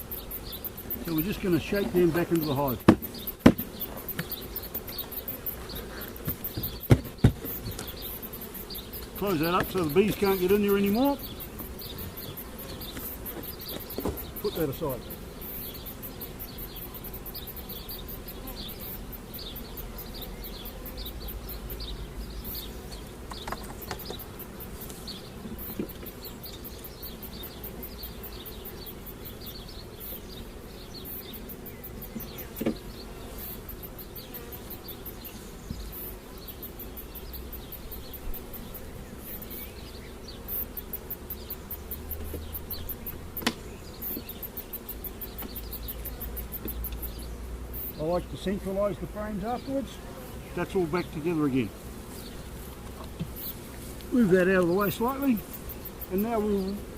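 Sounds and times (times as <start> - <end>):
honey bees buzzing: 0.0 - 56.9
sharp knocks: 2.8 - 4.3, 6.3 - 7.8.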